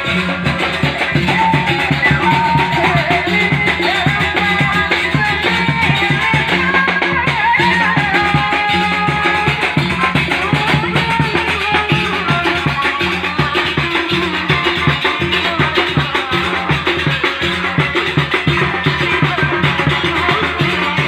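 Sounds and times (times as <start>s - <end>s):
repeating bass pattern: 0.0s - 12.7s
fast drum rhythm: 0.0s - 21.0s.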